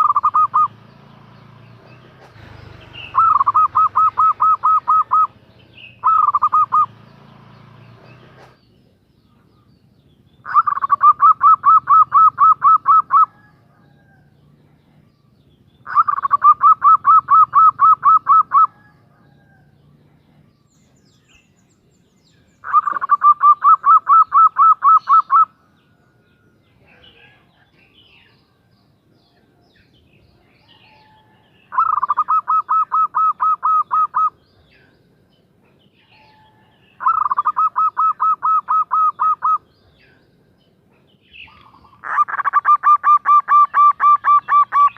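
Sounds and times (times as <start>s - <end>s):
dove cooing: 0.0s - 0.8s, 1.8s - 7.0s, 10.4s - 15.0s, 15.8s - 20.4s, 22.6s - 25.6s, 30.7s - 34.4s, 36.1s - 39.7s, 41.4s - 44.9s.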